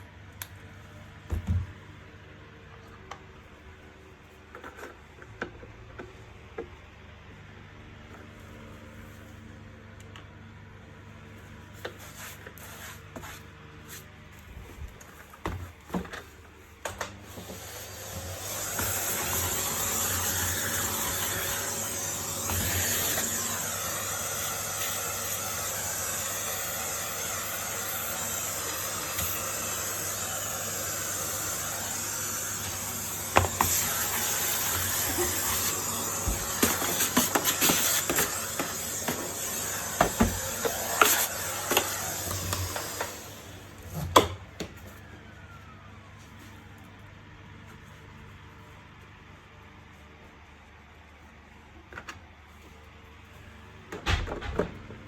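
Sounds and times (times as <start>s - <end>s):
vacuum cleaner motor running: 16.9s - 45.0s.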